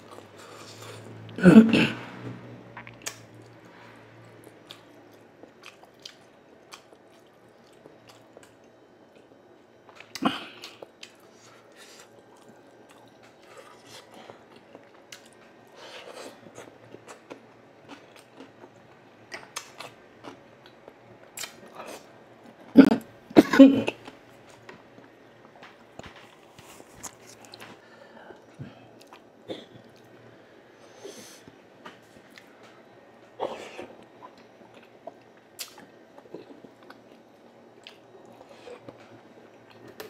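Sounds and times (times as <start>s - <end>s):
chewing fried food: 4.3s - 22.6s, 24.0s - 27.8s, 33.8s - 40.0s.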